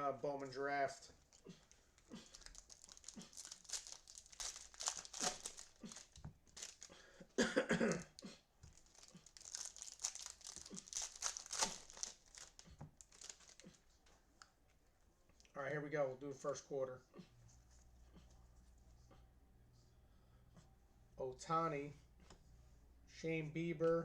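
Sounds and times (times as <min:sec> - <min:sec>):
foil wrappers tearing and crinkling: 0:01.6 - 0:07.0, 0:08.7 - 0:13.7.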